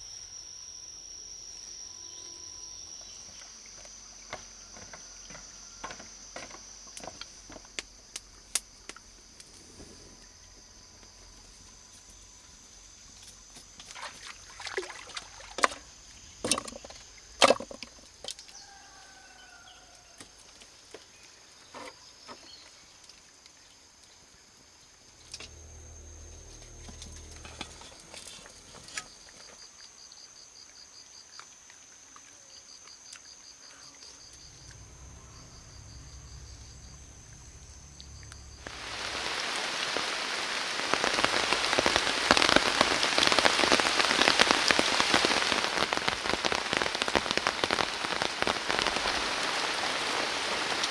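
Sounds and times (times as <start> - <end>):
pulsing insect calls: 0.0 - 22.6, 23.2 - 50.9
high insect drone: 0.0 - 50.9
heavy rain: 34.4 - 50.9.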